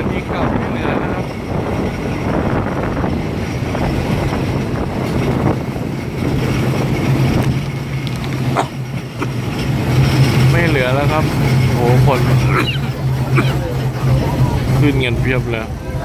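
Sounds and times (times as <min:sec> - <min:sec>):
wind on microphone: 0:00.0 - 0:09.9
diesel engine low hum: 0:00.0 - 0:16.0
train running rumble: 0:00.0 - 0:16.0.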